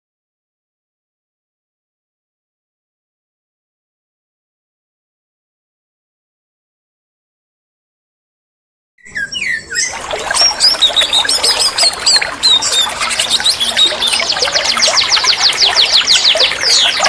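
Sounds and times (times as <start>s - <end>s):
songbird singing: 9.0s - 17.0s.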